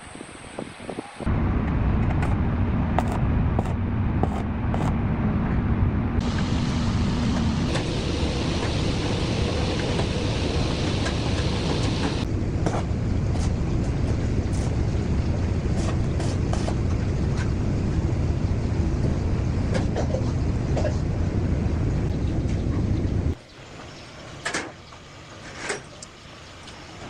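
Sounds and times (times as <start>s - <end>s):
tractor engine running: 1.3s - 5.0s, 6.2s - 18.1s.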